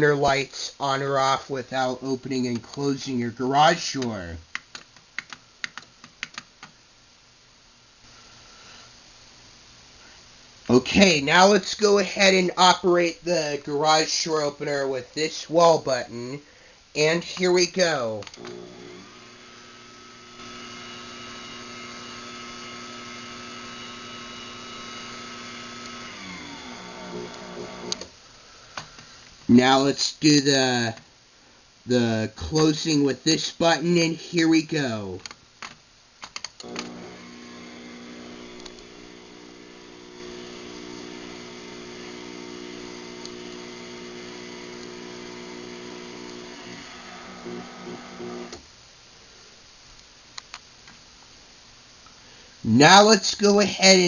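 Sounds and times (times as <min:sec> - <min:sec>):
garage door opener motor: 0:18.4 - 0:28.1, 0:36.6 - 0:48.6.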